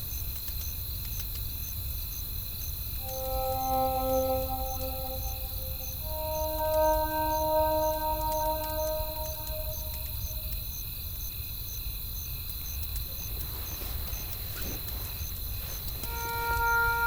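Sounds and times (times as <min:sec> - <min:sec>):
cricket chirping: 0:00.0 - 0:17.0
sustained music tones: 0:03.0 - 0:10.5, 0:16.1 - 0:17.0.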